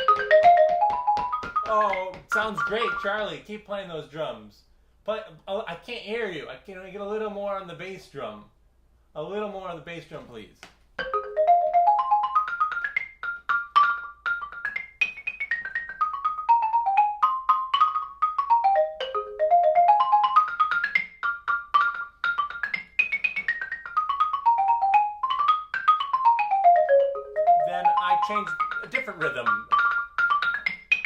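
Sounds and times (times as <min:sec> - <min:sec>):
xylophone played with mallets: 0:00.0 - 0:03.4, 0:11.0 - 0:31.0.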